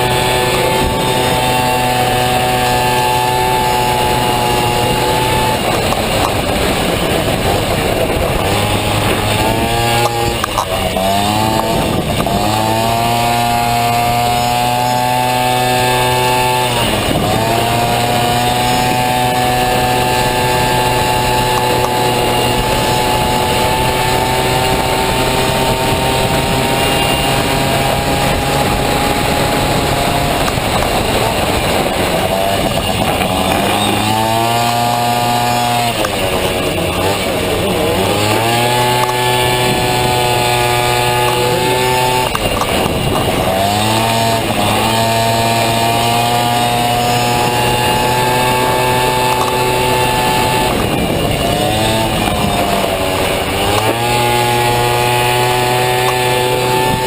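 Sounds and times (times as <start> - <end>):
scooter engine revving: 0.0 - 57.0.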